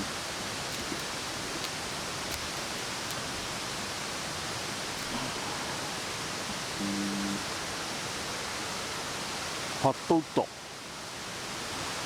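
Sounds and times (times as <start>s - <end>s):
steady rushing outdoor noise: 0.0s - 6.8s.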